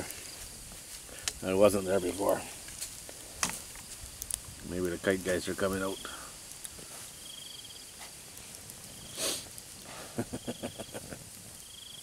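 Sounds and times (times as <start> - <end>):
crickets chirping: 0.0 - 12.0
steady hiss: 0.0 - 12.0
breathy puff of noise: 9.1 - 10.2.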